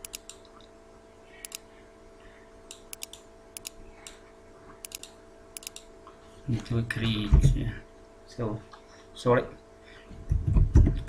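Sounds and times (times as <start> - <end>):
computer keys clicking: 0.0 - 0.5, 1.4 - 1.7, 2.7 - 4.2, 4.8 - 5.9
faint steady hum: 0.0 - 11.0.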